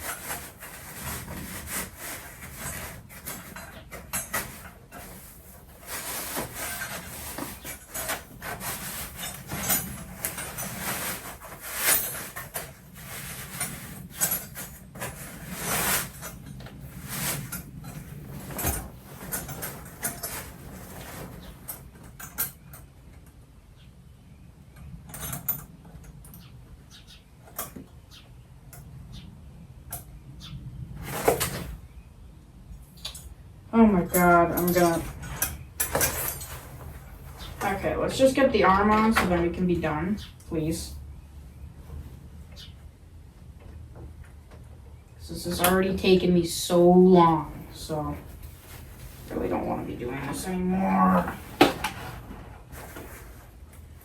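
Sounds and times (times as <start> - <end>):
plastic parts scraping and rubbing: 0.0 - 22.1, 47.3 - 54.0.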